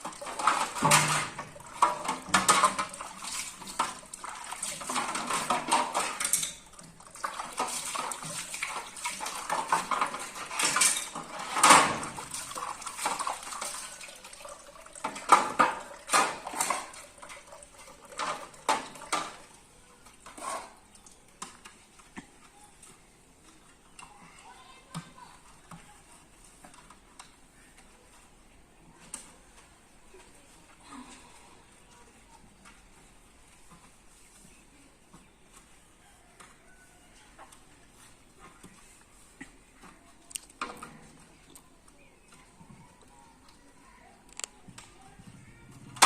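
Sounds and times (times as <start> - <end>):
dishes clattering and clinking: 0.0 - 19.5
water running: 0.0 - 21.4.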